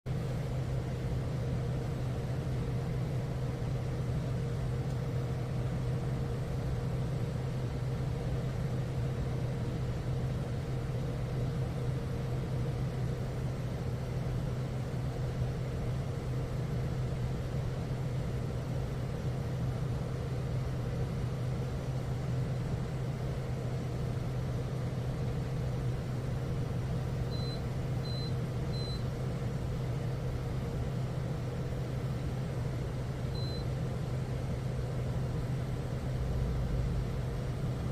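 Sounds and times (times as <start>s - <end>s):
steady low hum: 0.1s - 37.9s
short high-pitched beeps: 27.3s - 29.0s, 33.4s - 33.7s.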